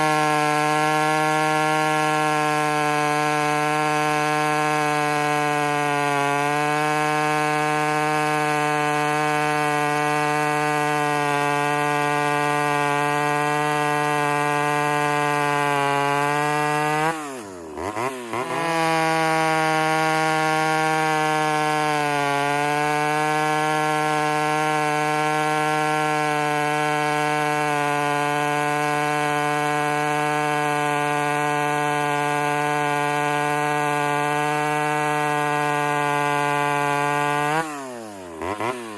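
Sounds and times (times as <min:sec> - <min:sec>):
chainsaw running: 0:00.0 - 0:38.9.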